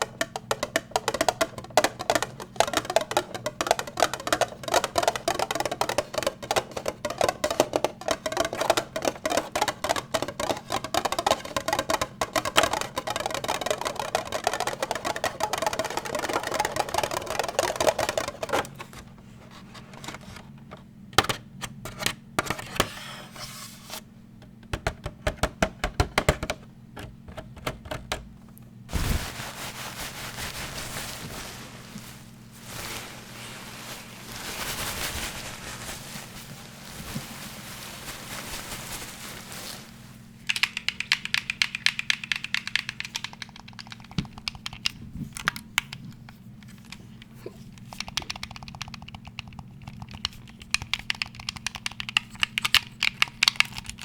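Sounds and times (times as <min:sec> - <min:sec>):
rapid tapping on hard objects: 0:00.0 - 0:21.5, 0:24.4 - 0:28.3, 0:40.3 - 0:54.0.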